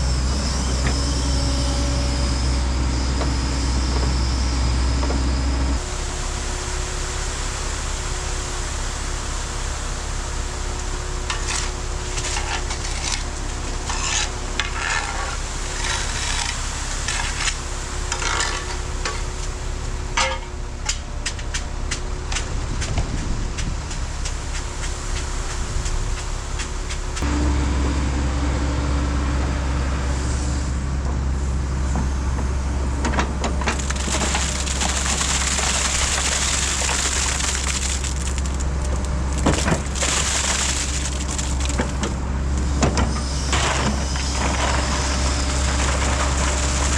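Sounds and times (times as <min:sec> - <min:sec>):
soil crunching and scraping: 0:11.2 - 0:19.3, 0:33.4 - 0:46.9.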